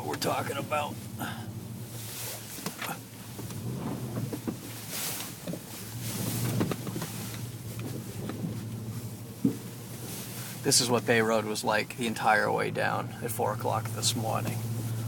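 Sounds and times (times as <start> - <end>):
low engine hum: 0.0 - 15.0
knocks and rattles: 2.6 - 4.8.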